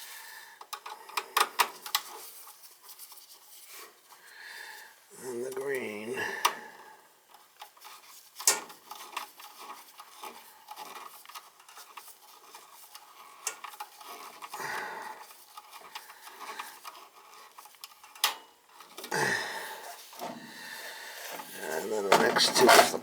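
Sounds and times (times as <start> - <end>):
wires rubbing: 15.5 - 23.0.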